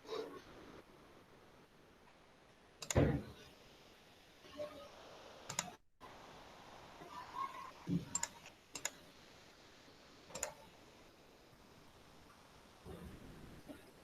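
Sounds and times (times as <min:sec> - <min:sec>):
faint background hiss: 0:00.0 - 0:14.0
computer keyboard clicks: 0:10.3 - 0:10.6.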